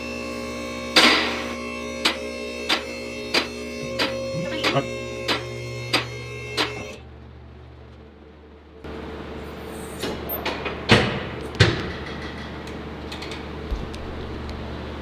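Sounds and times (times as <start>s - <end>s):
steady low hum: 0.0s - 9.2s
loud sharp knocks: 1.0s - 4.2s.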